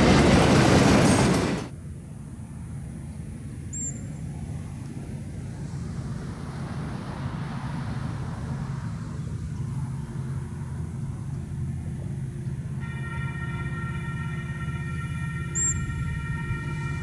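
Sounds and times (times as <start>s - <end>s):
train rumbling: 0.0s - 17.0s
train horn chord: 12.6s - 17.0s.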